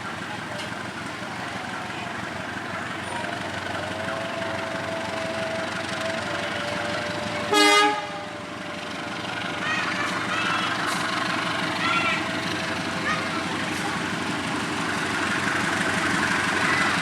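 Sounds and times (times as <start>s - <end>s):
train running: 0.0s - 17.0s
train horn toot: 4.1s - 8.4s.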